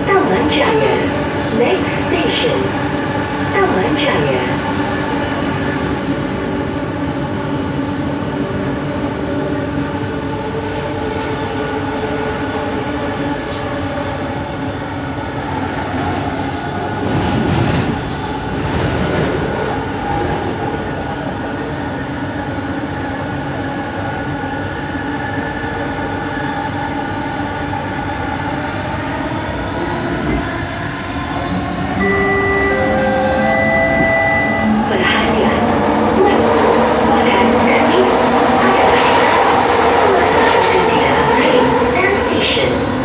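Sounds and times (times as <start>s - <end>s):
train rolling noise: 0.0s - 43.0s.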